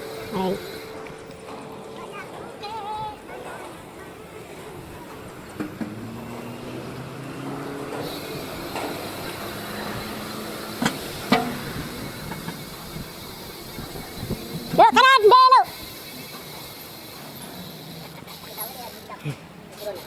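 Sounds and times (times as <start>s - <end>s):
passing motor vehicle hum: 0.0s - 15.0s
road noise while cycling: 0.0s - 20.0s.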